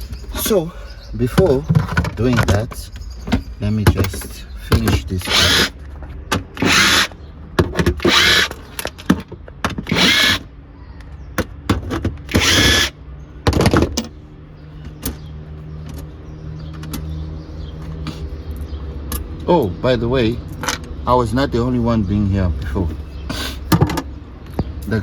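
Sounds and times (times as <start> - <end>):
cordless drill running: 5.3 - 5.7, 6.6 - 7.1, 8.0 - 8.5, 9.9 - 10.4, 12.3 - 12.9.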